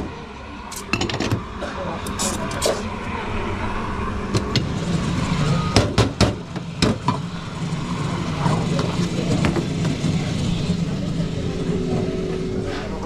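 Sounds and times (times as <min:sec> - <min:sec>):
coffee machine hum: 0:00.0 - 0:13.0
coffee gear knocking and clattering: 0:00.7 - 0:01.4.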